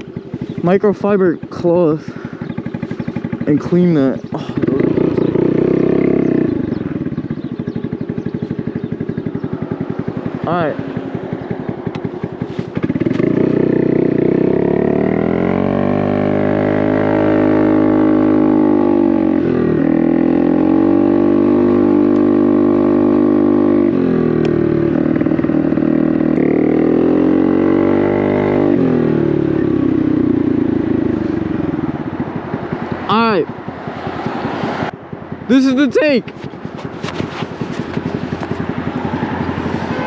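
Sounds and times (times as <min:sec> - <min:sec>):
scooter engine revving: 0:00.0 - 0:40.0.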